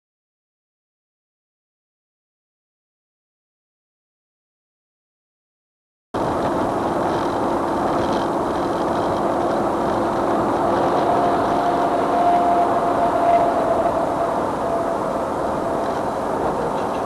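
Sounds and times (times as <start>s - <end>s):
held whine: 6.2s - 17.0s
vehicle engine and road noise: 6.2s - 17.0s.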